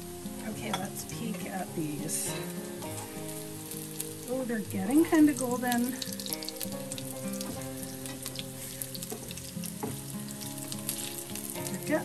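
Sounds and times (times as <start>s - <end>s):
background music with held notes: 0.0s - 12.0s
pancakes sizzling in oil: 0.0s - 12.0s.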